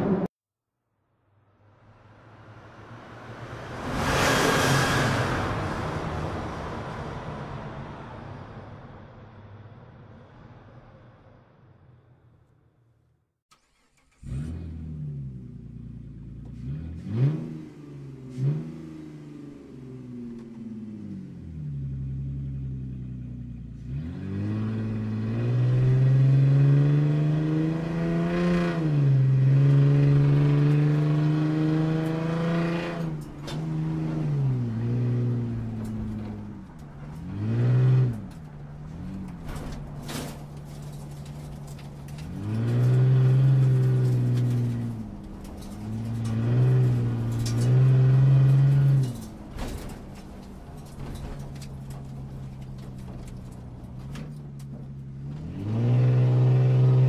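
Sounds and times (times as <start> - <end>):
car engine idling and revving: 13.5 - 57.0.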